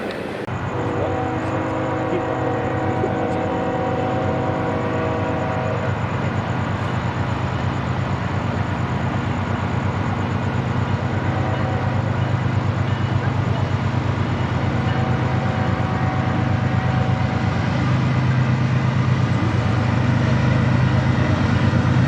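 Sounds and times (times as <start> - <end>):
locomotive engine rumble: 0.0 - 22.0
rolling train noise: 0.0 - 22.0
locomotive air horn chord: 0.7 - 6.0, 11.2 - 12.1, 14.7 - 17.6.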